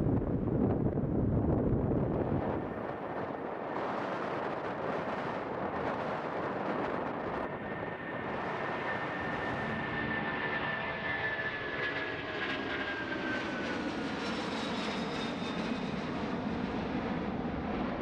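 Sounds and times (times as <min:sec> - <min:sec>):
jet engines roaring: 0:00.0 - 0:18.0
high engine whine: 0:06.7 - 0:14.2.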